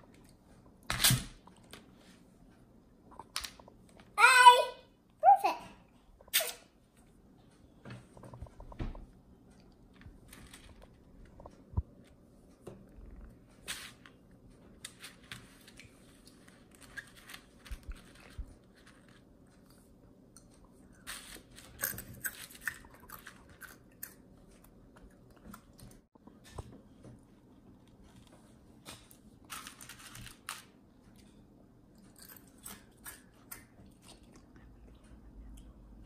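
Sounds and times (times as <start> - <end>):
child chewing crunchy cereal: 9.4 - 11.8, 12.9 - 26.4, 27.4 - 36.0.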